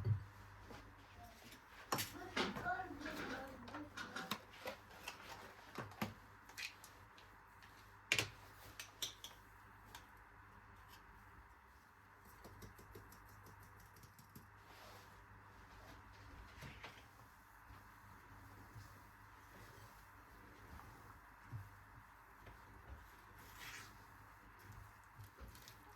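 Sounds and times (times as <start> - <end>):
light clicks and taps: 12.2 - 14.6.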